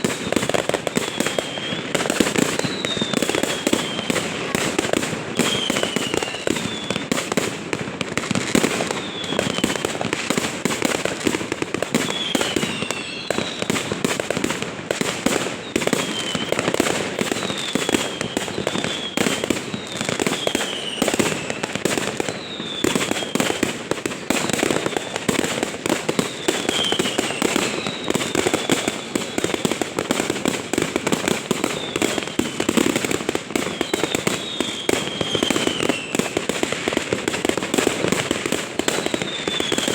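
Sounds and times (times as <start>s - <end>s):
fireworks crackling and popping: 0.0s - 39.9s
firework whistle falling in pitch: 0.7s - 4.3s, 5.3s - 7.1s.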